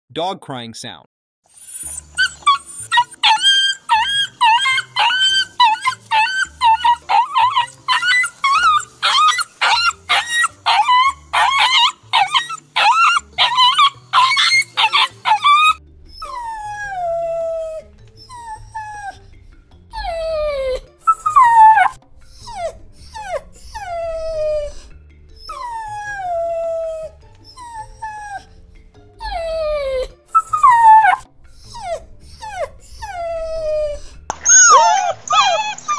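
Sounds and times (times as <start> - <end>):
dogs whining and crying: 1.5 - 35.9.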